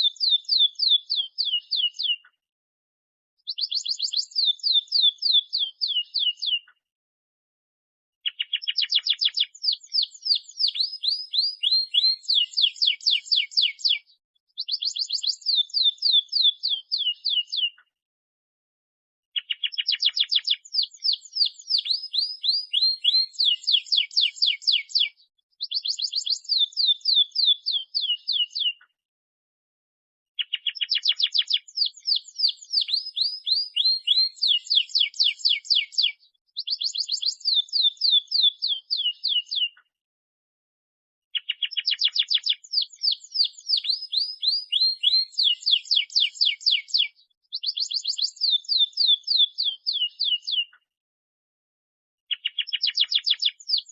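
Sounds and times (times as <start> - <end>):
canary song trills: 0.0 - 2.4, 3.4 - 6.8, 8.2 - 17.9, 19.4 - 28.9, 30.4 - 39.8, 41.3 - 50.9, 52.3 - 53.9.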